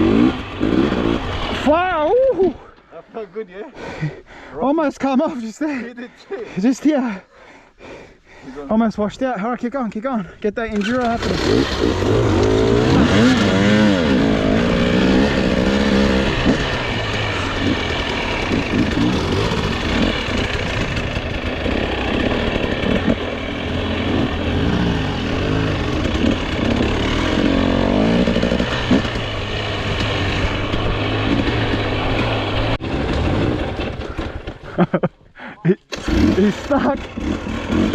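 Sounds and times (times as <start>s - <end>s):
dirt bike engine revving: 0.0s - 2.1s, 10.7s - 35.0s, 35.9s - 37.9s.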